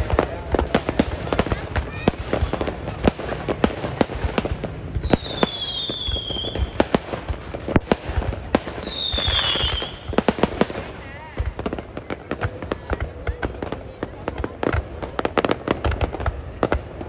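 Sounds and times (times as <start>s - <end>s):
fireworks bangs and crackles: 0.0s - 17.0s
firework whistles falling in pitch: 5.0s - 6.8s, 8.8s - 10.1s.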